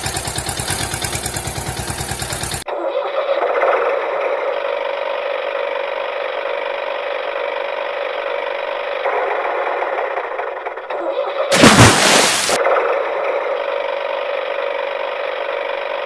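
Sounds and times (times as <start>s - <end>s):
loud noisy burst: 11.5s - 12.6s.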